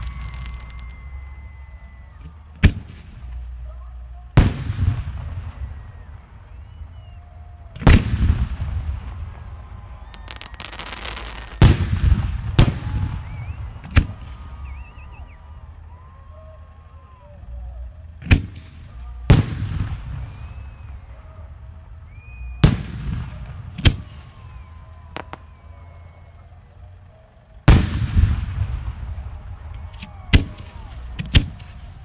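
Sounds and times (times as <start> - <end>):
firework booms: 0.0 - 3.4, 4.4 - 6.2, 7.8 - 15.0, 18.3 - 21.0, 22.6 - 24.5, 27.7 - 31.9
firework crackling: 0.0 - 32.0.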